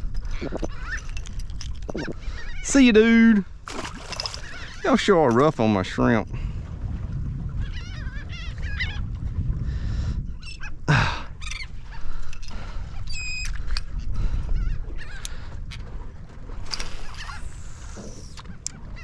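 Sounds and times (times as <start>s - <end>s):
wind rumble on microphone: 0.0s - 19.0s
seabirds squawking: 0.2s - 3.3s, 3.9s - 5.3s, 7.6s - 9.1s, 10.4s - 15.7s, 16.7s - 19.0s.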